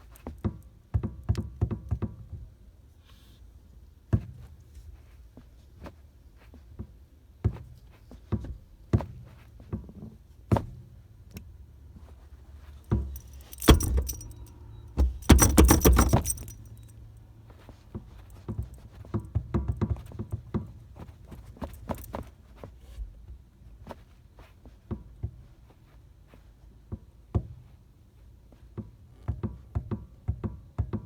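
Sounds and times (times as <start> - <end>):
keys jangling: 12.8 - 17.1, 21.6 - 22.2
car pedal knocking: 12.9 - 16.8, 21.6 - 22.3.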